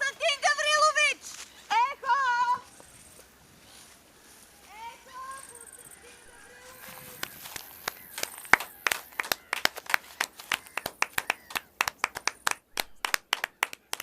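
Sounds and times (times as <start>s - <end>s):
people clapping: 6.8s - 14.0s.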